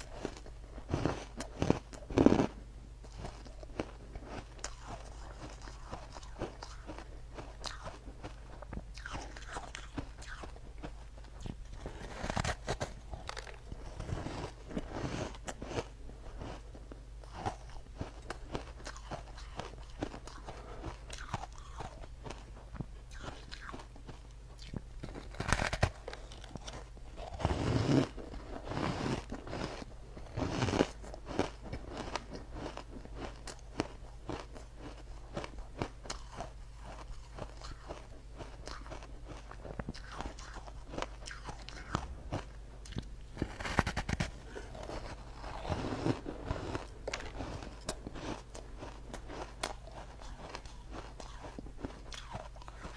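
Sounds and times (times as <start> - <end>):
person crunching ice: 11.8 - 16.6, 24.6 - 52.9.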